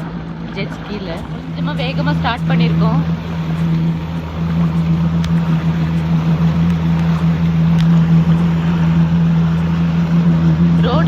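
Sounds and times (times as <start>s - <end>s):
jet ski engine running: 0.0s - 11.0s
water and wind noise: 0.0s - 11.0s.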